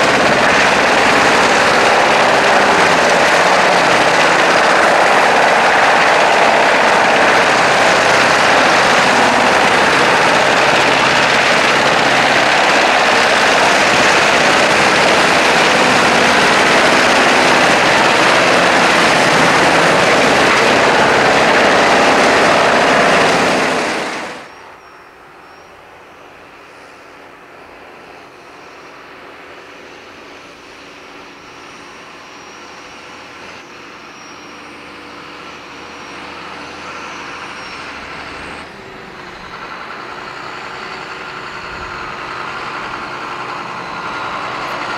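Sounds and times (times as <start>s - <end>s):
wood chipper roaring: 0.0s - 24.8s, 25.9s - 44.9s
machine hum: 0.0s - 25.4s.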